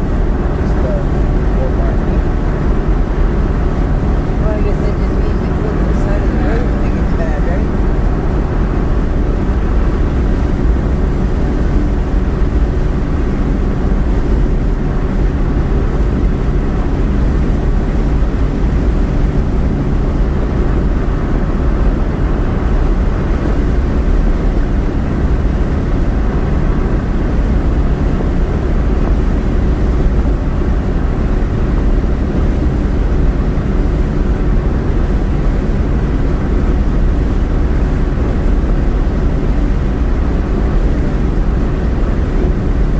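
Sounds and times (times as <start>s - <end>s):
road and engine drone in car: 0.0s - 42.9s.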